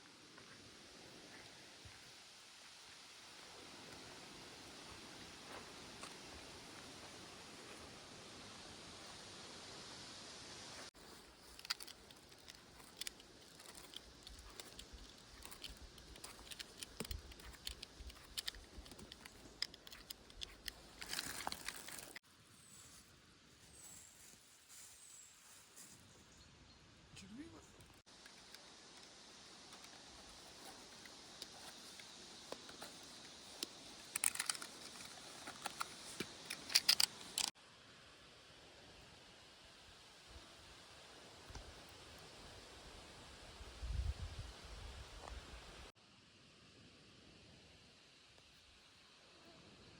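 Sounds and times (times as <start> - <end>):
steady hiss: 0.0 - 26.3, 27.2 - 49.9
rustling in dry leaf litter: 10.6 - 26.3.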